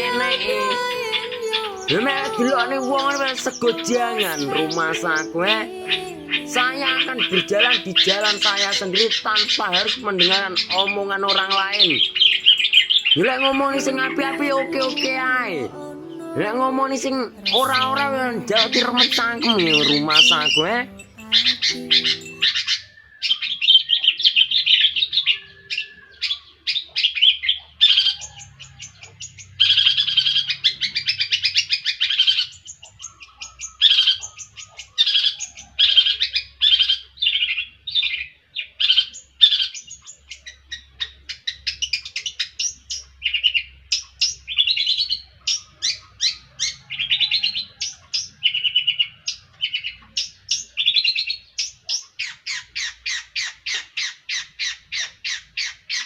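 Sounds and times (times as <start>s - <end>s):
shrike chattering song: 0.0s - 22.8s.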